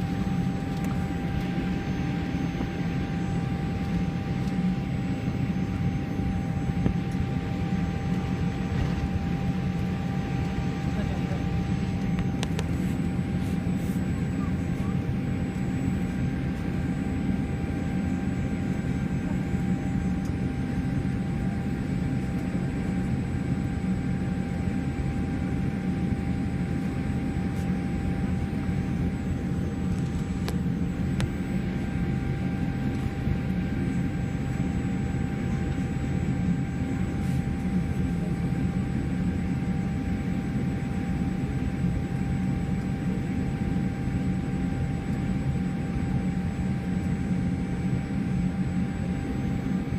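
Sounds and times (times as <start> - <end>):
jet engines heard from cabin: 0.0 - 49.9.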